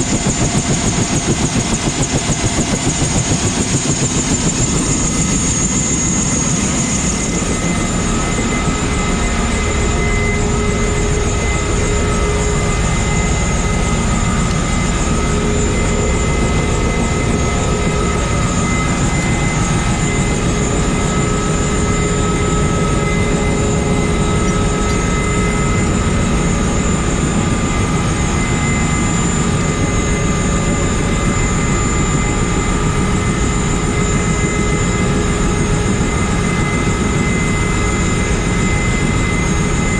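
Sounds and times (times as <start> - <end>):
helicopter engine and rotor noise: 0.0 - 39.9
helicopter turbine whine: 0.0 - 39.9.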